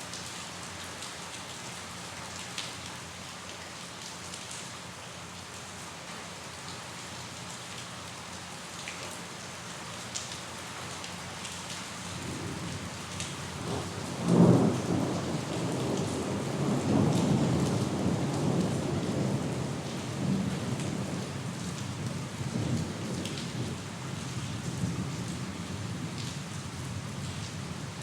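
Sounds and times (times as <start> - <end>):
steady rain falling: 0.0 - 28.0
rolling thunder: 13.6 - 23.8.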